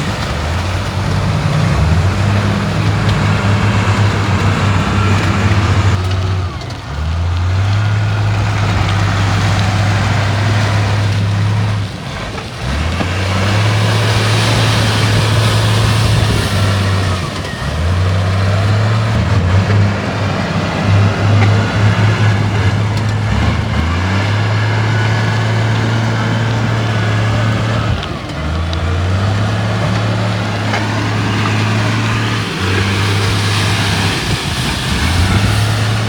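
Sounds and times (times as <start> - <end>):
heavy diesel machinery under load: 0.0 - 36.0.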